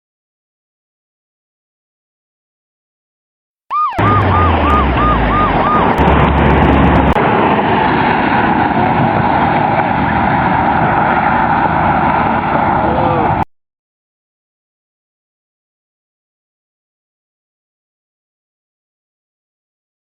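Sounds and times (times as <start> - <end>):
police siren yelping: 3.7 - 7.2
loud steady vehicle noise: 3.7 - 13.4.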